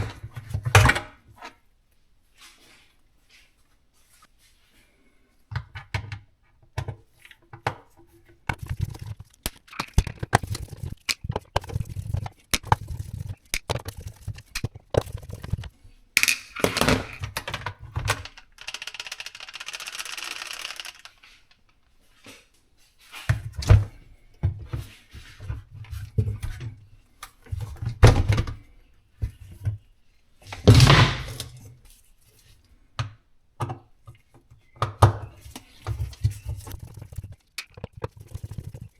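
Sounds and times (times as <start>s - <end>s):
plastic and metal parts clunking: 5.5s - 21.9s.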